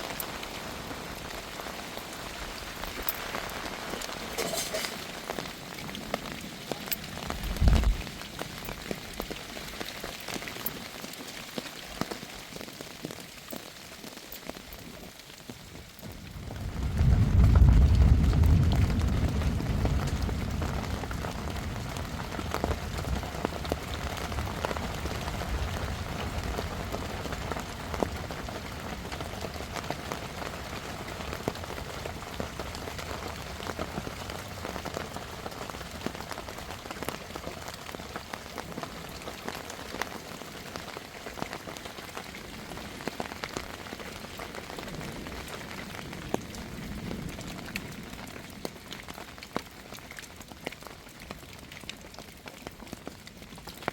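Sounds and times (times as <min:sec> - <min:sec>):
heavy rain: 0:00.0 - 0:53.9
sharp raindrop impacts: 0:00.0 - 0:53.9
low rumble of thunder: 0:07.1 - 0:08.4, 0:16.1 - 0:36.1, 0:44.6 - 0:49.1.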